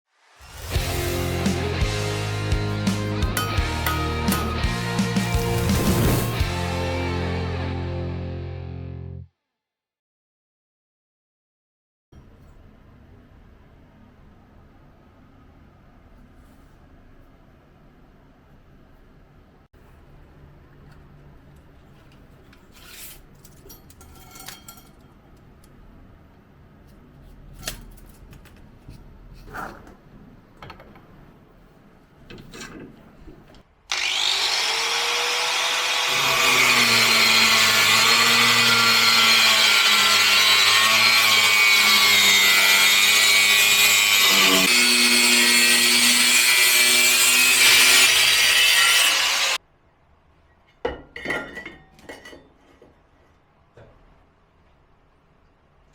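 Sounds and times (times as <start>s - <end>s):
electric power tool cutting: 0.5s - 8.0s, 33.9s - 49.6s.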